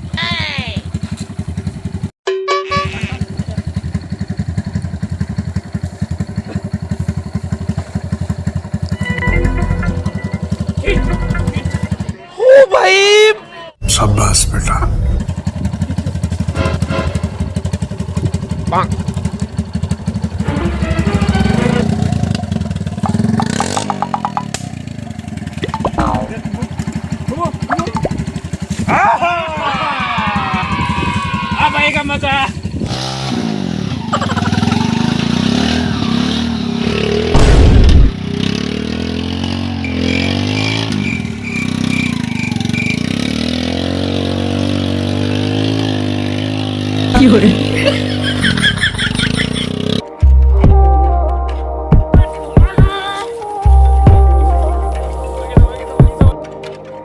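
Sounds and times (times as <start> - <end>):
tractor diesel engine running: 3.2 - 12.2, 13.8 - 30.9.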